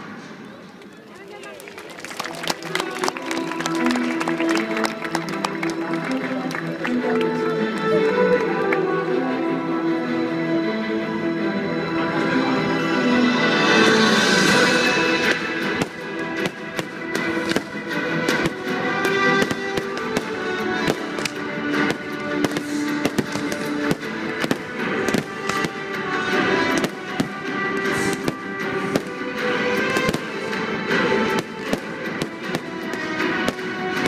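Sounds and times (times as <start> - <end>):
music: 1.7 - 34.0
fireworks bangs and crackles: 14.5 - 34.0.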